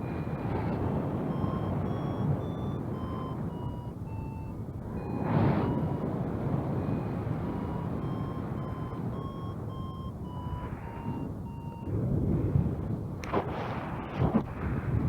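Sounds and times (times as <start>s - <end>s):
variometer beeping: 0.0s - 12.8s
wind rumble on microphone: 0.0s - 15.0s.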